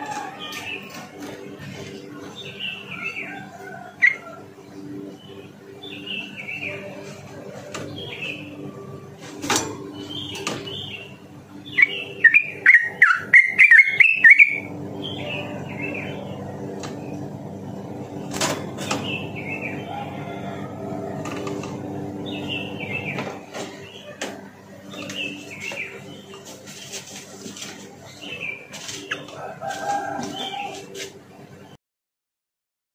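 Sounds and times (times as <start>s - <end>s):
low steady hum: 0.0s - 31.8s
bird chattering song: 5.1s - 7.0s, 7.8s - 8.6s, 9.9s - 17.2s, 22.2s - 24.2s, 24.8s - 27.0s.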